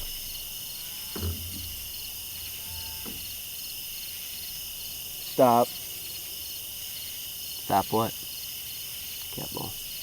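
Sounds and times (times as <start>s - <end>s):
crickets chirping: 0.0s - 10.0s
soft thump: 1.2s - 2.1s.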